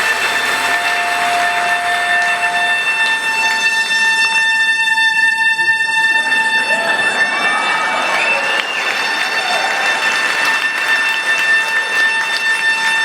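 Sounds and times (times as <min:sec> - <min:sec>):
soprano saxophone long high note: 0:00.0 - 0:07.5
lower tone: 0:00.0 - 0:08.3.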